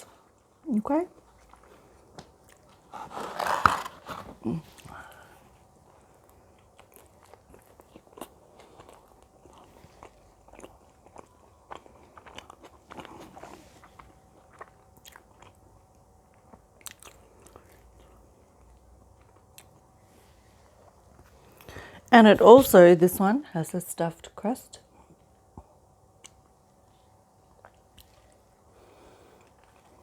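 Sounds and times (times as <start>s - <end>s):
chewing and biting food: 0.0s - 4.3s, 5.1s - 20.0s, 25.2s - 28.6s, 29.3s - 30.0s.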